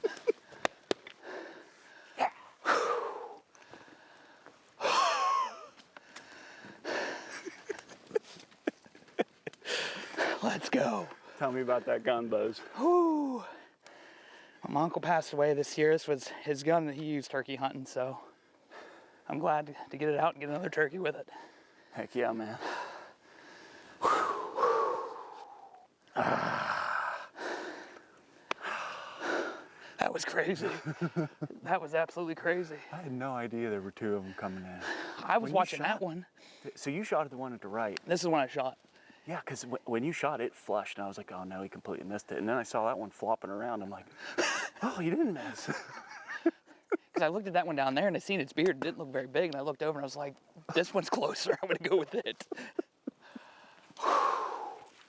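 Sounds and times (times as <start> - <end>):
man breathing hard: 0.4 - 5.0, 6.0 - 7.4, 9.6 - 10.4, 13.4 - 14.6, 22.6 - 30.0, 53.2 - 55.0
man sighing heavily: 1.2 - 3.8, 4.8 - 5.2, 9.6 - 10.4, 12.7 - 14.1, 24.0 - 27.9, 53.2 - 54.9.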